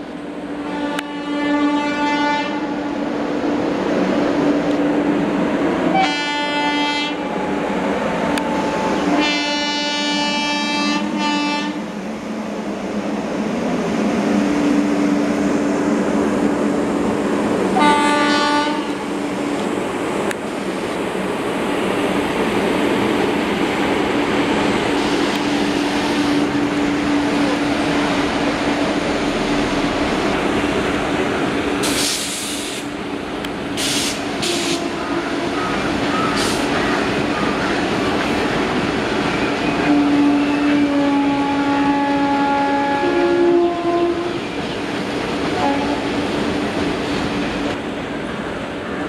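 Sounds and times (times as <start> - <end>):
train rumbling and clattering: 0.0 - 49.0
steady tones: 21.1 - 32.1
short hiss: 31.8 - 32.9.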